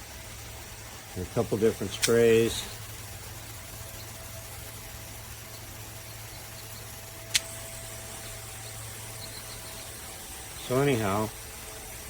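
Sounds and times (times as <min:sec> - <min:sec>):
water heater hum: 0:00.0 - 0:12.0
water running from shower head: 0:00.0 - 0:12.0
sharp click: 0:07.3 - 0:07.6.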